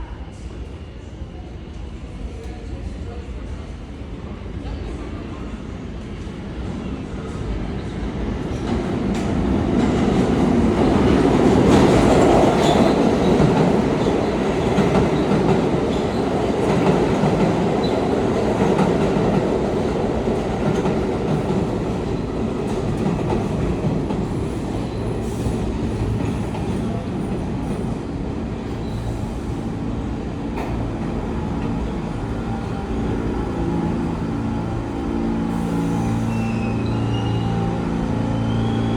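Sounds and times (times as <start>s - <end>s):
train rumble: 0.0s - 38.9s
wheel squeal: 36.3s - 37.7s.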